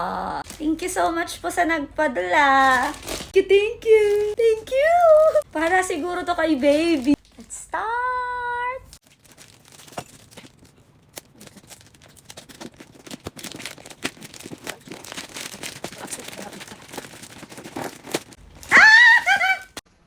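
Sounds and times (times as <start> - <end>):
packaging tearing and crinkling: 2.6 - 3.4, 8.9 - 19.8
high-pitched cry: 18.7 - 19.8.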